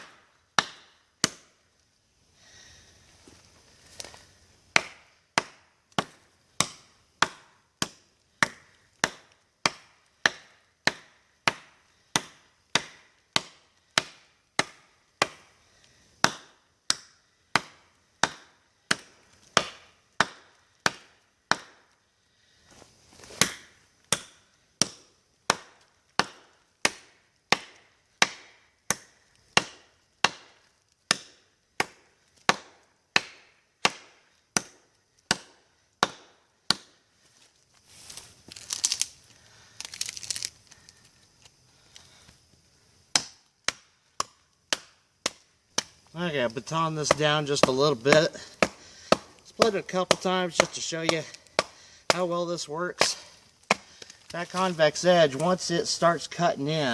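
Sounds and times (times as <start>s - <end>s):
knife chopping into wood: 4.8s - 15.4s, 23.3s - 29.0s, 43.1s - 45.9s, 47.0s - 52.2s.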